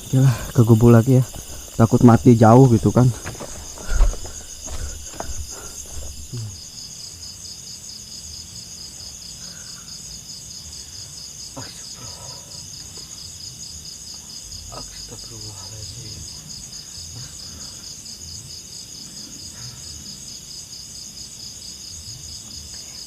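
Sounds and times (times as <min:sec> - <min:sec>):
night insects chirping: 0:00.0 - 0:23.0
low thumps and rustles: 0:00.7 - 0:06.7.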